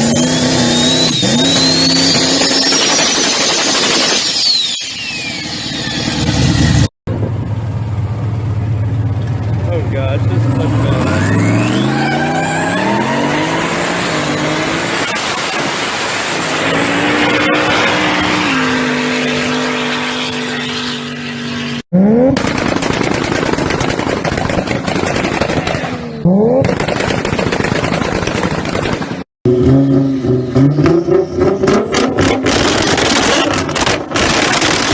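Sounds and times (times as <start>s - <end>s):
car engine revving: 0.0s - 4.1s, 5.3s - 22.6s, 29.5s - 34.9s
exhaust crackling: 29.5s - 34.9s.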